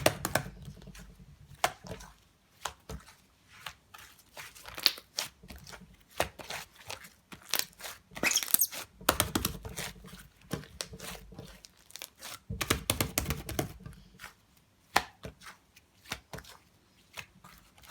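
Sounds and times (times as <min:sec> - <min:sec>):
slime squishing and crackling: 0:04.4 - 0:06.8, 0:07.4 - 0:13.8.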